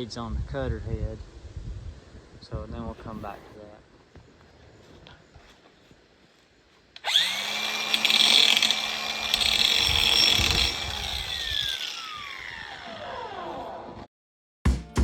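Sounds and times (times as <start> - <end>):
power tool motor whine: 7.0 - 14.0.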